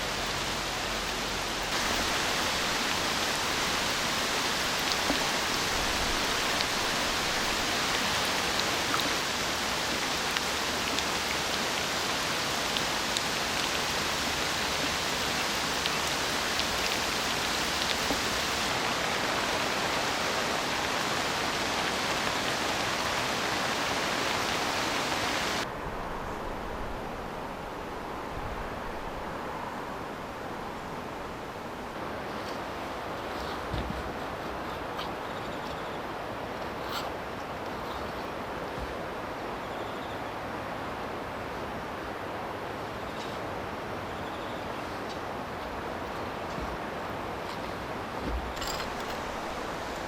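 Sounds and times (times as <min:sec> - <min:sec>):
rain falling: 0:00.0 - 0:50.0
raindrop ticks: 0:12.6 - 0:18.7.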